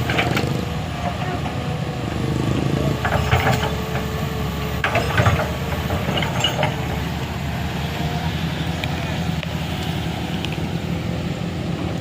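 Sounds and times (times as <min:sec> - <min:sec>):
metallic clanks and creaks: 0:00.0 - 0:01.6, 0:02.6 - 0:07.1
vehicle engine running: 0:00.0 - 0:12.0.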